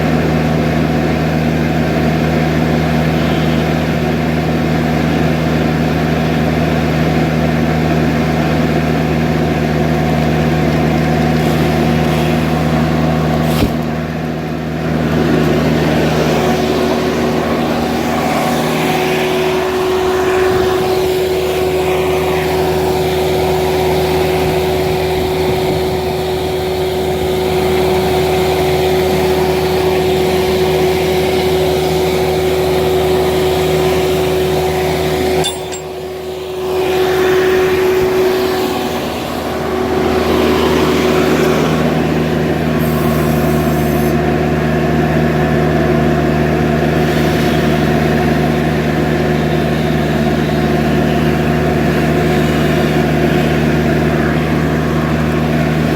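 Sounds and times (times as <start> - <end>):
loader engine running: 0.0 - 55.9
high-pitched whine: 15.5 - 44.2.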